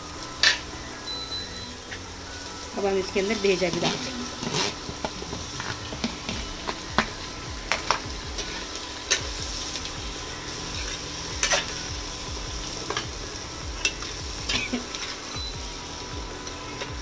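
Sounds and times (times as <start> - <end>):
food sizzling in a pan: 0.0 - 17.0
spatula scraping a pan: 3.3 - 7.1, 10.5 - 11.9.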